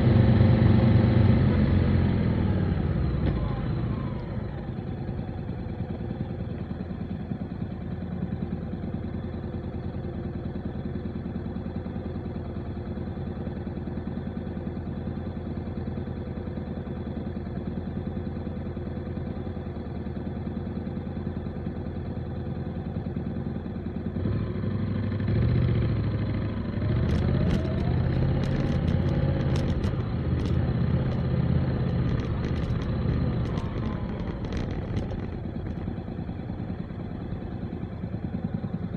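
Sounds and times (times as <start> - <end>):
motorcycle engine running: 0.0 - 38.9
sharp clicks: 27.1 - 35.9.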